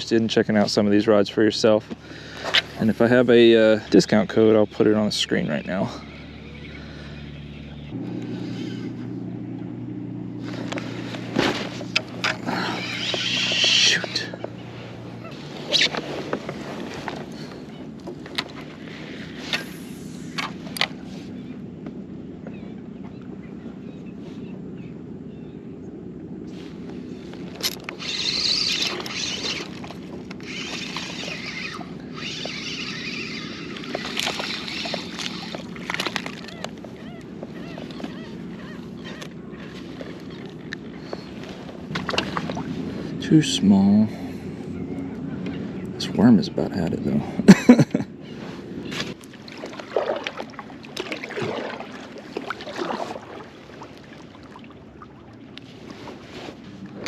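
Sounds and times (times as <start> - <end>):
water splashing around kayak: 0.0 - 24.5, 26.4 - 46.3, 48.2 - 57.0
knocks and clicks on hull: 10.6 - 12.4, 15.3 - 18.8, 33.6 - 42.8
fishing reel whirring: 12.0 - 14.4, 27.6 - 41.4.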